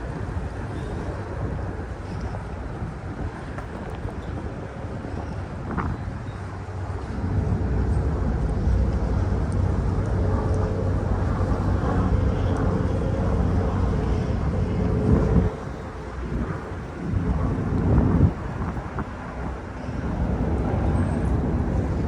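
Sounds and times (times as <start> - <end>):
engine rumble with droning hum: 0.0 - 22.0
wind rumbling on microphone: 0.0 - 22.0.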